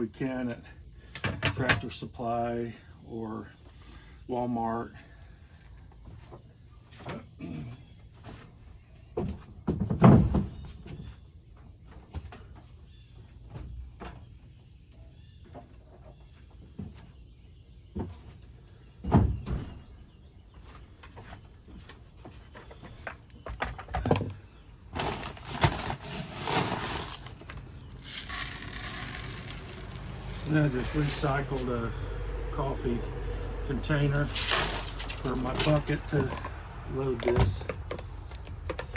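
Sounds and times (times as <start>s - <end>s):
bag rustling: 25.0s - 30.6s.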